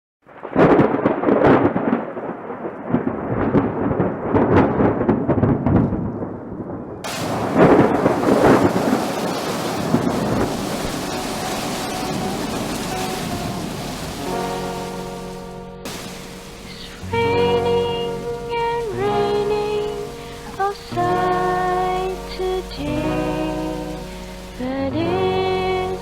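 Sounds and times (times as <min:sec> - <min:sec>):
thunder rumbling and cracking: 0:00.3 - 0:24.7
heavy rain hissing: 0:07.1 - 0:26.0.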